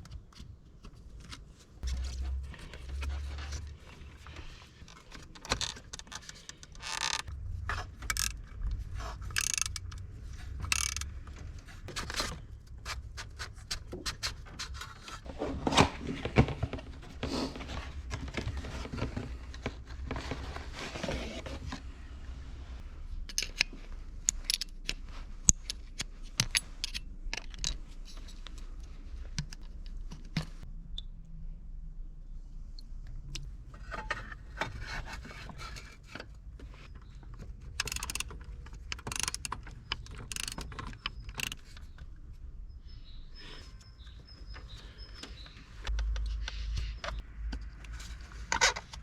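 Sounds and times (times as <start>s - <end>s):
sharp clicks and rattles: 1.8s - 15.0s, 36.1s - 42.3s.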